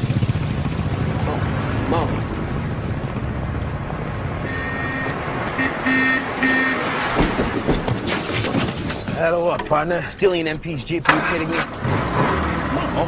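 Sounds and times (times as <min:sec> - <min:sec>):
vehicle horn honking: 0:04.4 - 0:07.0.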